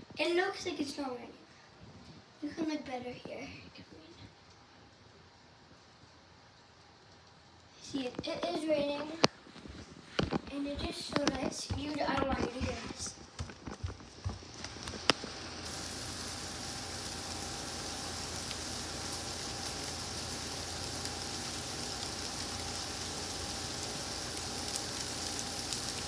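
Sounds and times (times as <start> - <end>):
steady rain falling: 4.0 - 26.0.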